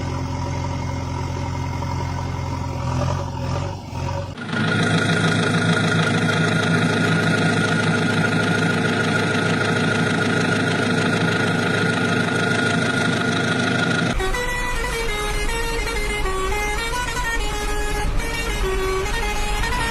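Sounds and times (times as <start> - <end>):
vehicle engine idling: 0.0 - 19.9.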